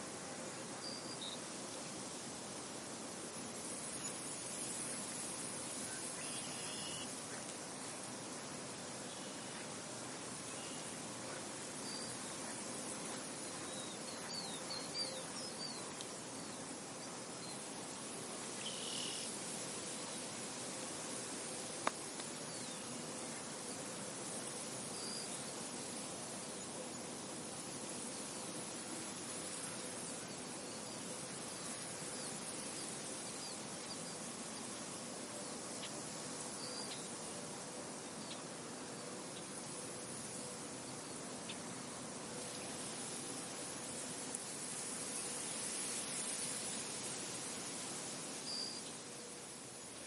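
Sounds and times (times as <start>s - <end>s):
wind hiss: 0.0s - 50.0s
faint bird chirps: 5.8s - 7.4s, 13.4s - 16.7s, 18.6s - 19.3s, 36.6s - 37.1s, 48.4s - 49.0s.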